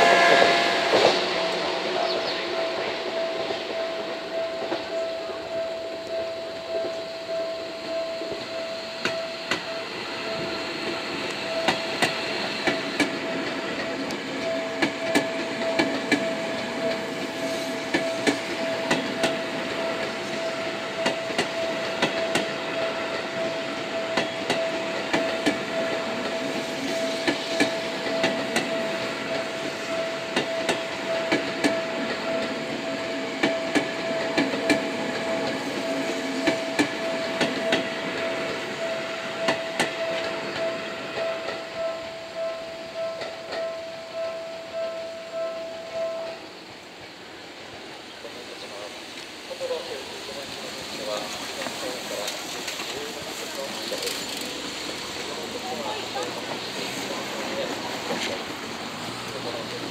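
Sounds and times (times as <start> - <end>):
steady high-pitched tone: 0.0 - 46.7
train wheels clacking over rail joints: 7.9 - 41.8, 50.5 - 59.9.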